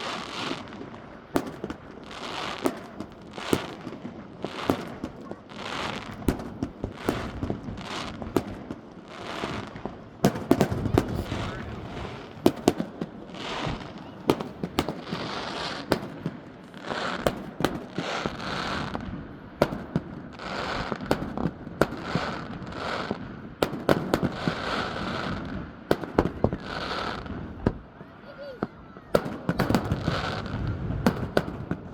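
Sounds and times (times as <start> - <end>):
fireworks bangs: 0.0 - 31.9.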